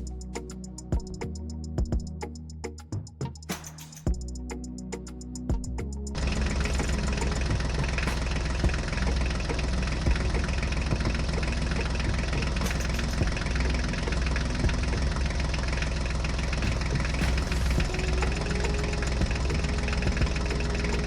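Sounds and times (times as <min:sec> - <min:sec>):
small tractor engine running: 0:06.2 - 0:21.0.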